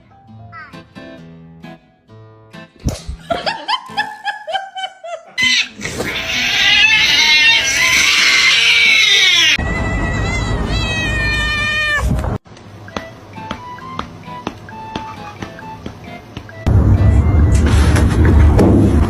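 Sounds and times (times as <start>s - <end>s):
cat meowing: 5.4s - 12.2s
cat yowling: 5.4s - 12.2s.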